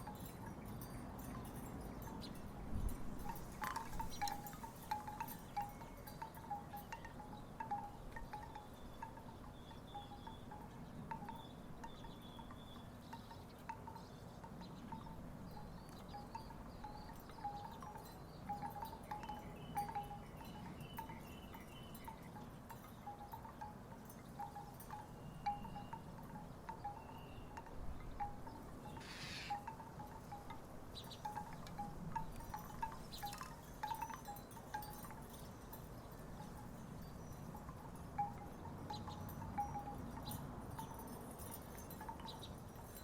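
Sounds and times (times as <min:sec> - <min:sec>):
low rumble of wind: 0:00.0 - 0:43.0
wooden wind chimes clacking: 0:00.0 - 0:43.0
brief hiss: 0:29.0 - 0:29.5.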